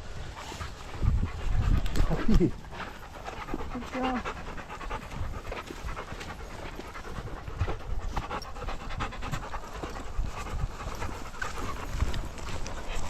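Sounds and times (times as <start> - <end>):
dog panting: 0.1 - 13.0.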